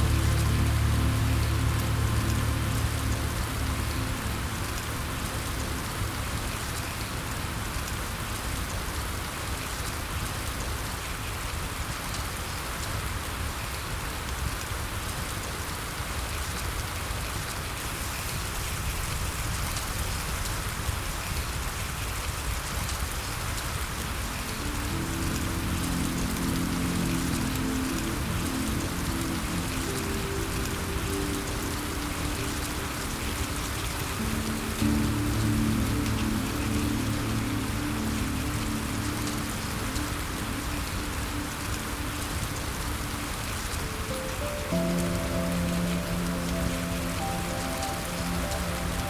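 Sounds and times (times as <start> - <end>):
soft low music: 0.0 - 10.7, 23.8 - 49.0
steady rain falling: 0.0 - 49.0.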